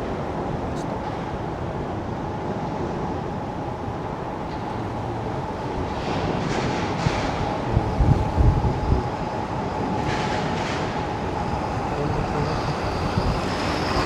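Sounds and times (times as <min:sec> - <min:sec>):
strong wind on microphone: 0:05.7 - 0:14.0.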